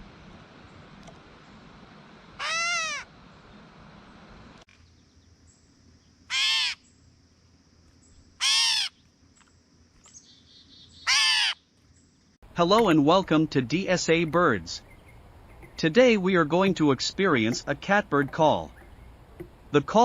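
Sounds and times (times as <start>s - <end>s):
catbird mew call: 2.4s - 3.1s, 6.3s - 6.8s, 8.4s - 9.0s, 11.0s - 11.6s.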